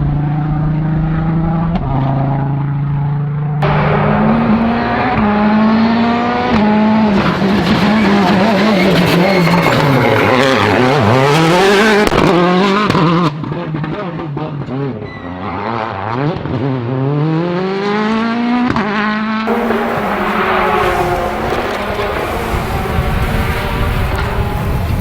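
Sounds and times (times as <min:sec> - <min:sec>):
rally car engines at full throttle: 0:00.0 - 0:25.0
exhaust cracks: 0:19.5 - 0:25.0.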